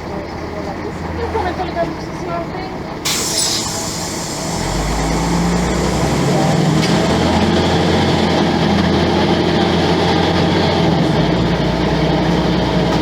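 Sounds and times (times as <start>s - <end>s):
diesel bus engine running: 0.0s - 13.0s.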